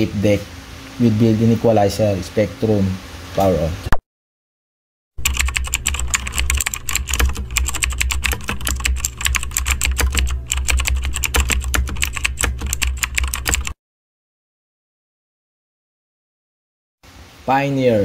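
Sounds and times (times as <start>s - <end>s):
rapid irregular clicking: 5.2s - 13.8s
steady low hum: 5.2s - 13.8s.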